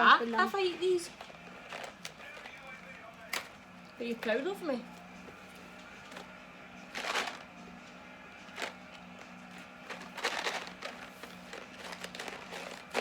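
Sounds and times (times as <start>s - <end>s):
plastic packaging rustling: 0.0s - 3.6s, 5.7s - 7.7s, 8.4s - 13.0s
low electrical hum: 0.0s - 13.0s.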